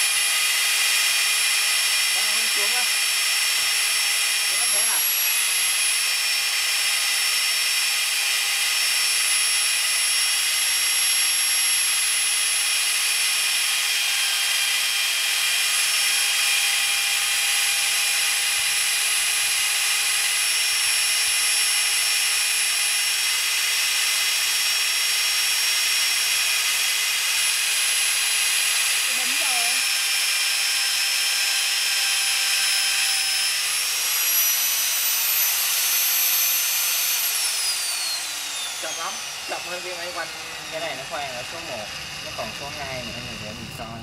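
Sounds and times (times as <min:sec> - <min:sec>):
magnetic drill boring through steel: 0:00.0 - 0:44.0.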